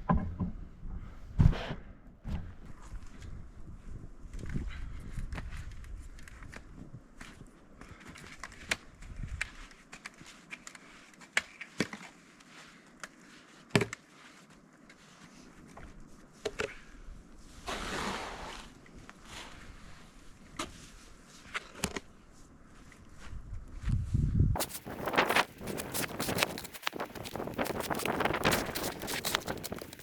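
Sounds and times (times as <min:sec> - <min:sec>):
swish of snow: 0:17.7 - 0:20.1, 0:24.6 - 0:30.0
footsteps crunching in snow: 0:24.6 - 0:30.0
knocks and scrapes on roof: 0:24.6 - 0:30.0.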